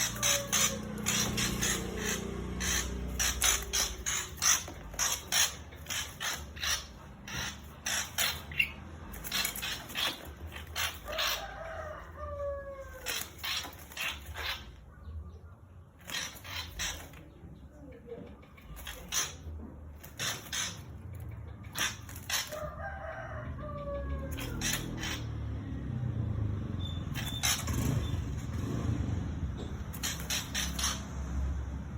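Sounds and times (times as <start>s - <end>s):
bird rattling call: 0.0s - 14.8s, 16.0s - 17.3s, 18.5s - 22.8s, 24.3s - 25.3s, 29.8s - 31.2s.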